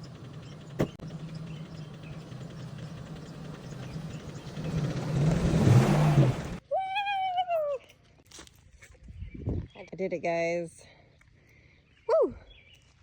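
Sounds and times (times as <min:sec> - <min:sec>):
truck engine revving under load: 0:00.0 - 0:06.6.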